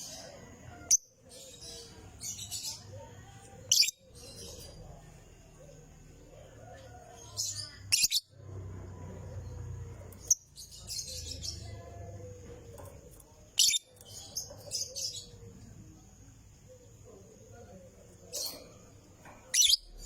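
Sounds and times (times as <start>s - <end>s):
bird chattering chirps: 12.6s - 15.5s, 19.4s - 20.0s.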